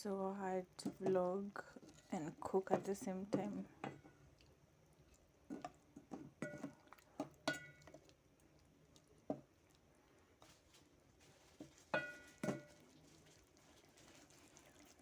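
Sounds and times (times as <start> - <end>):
pots and utensils clinking: 5.5 - 8.0, 11.5 - 12.9.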